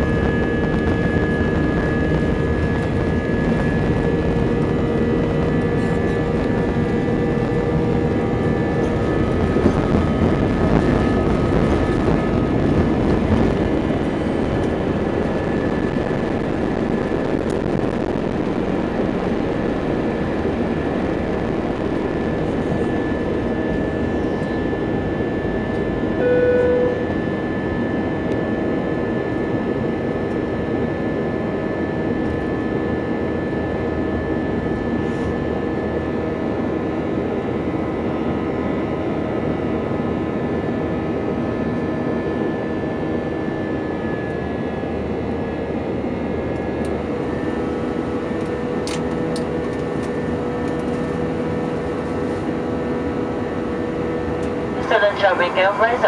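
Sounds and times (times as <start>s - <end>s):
jet engines humming: 0.0s - 56.0s
short tone: 26.2s - 27.2s
steady tones: 54.5s - 56.0s.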